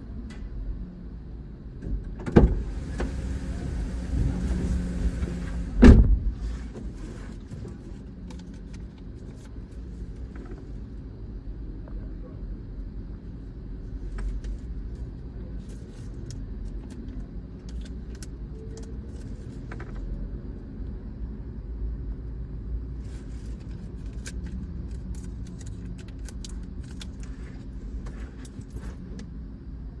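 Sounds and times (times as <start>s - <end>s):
car wash rumble: 2.2s - 10.9s.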